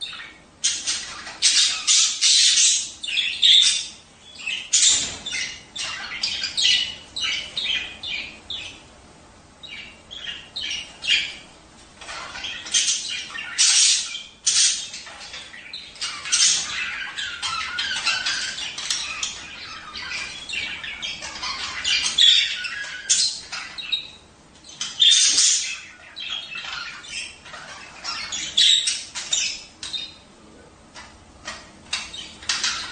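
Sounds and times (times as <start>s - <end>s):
budgerigars chattering: 0.0s - 8.9s, 9.6s - 30.3s, 30.9s - 32.9s.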